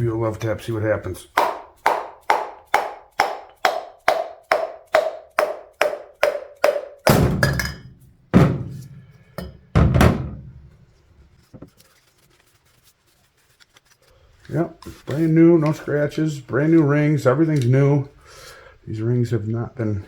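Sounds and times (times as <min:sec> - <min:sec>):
heavy deep hammer thumps: 0:01.4 - 0:10.7.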